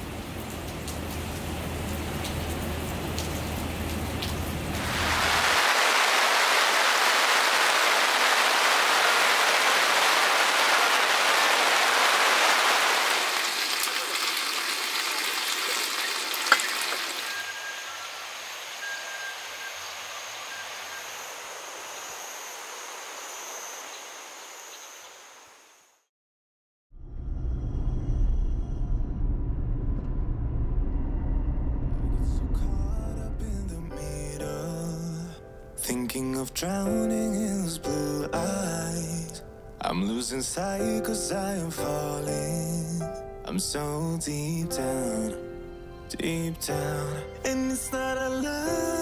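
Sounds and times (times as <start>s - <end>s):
rain falling: 0.0s - 21.4s
low hum: 27.0s - 35.3s.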